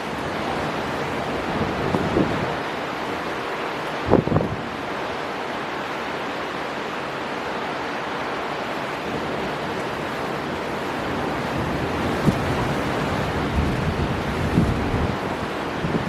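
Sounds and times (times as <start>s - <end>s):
strong wind: 0.0s - 16.0s
waves breaking: 0.0s - 16.0s
wind gust buffeting microphone: 0.2s - 2.7s, 4.0s - 4.9s, 9.2s - 16.0s.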